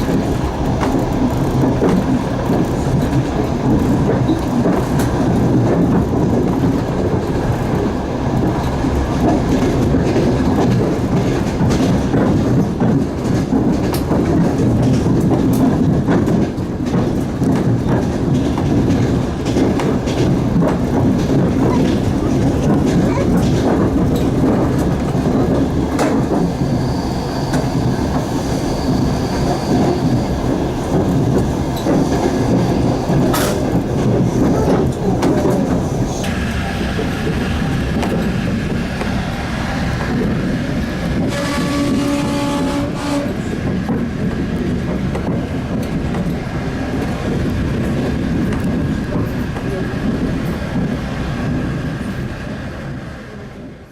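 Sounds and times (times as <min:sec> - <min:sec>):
train wheels rumbling on rails: 0:00.0 - 0:53.9
train horn: 0:41.2 - 0:43.5.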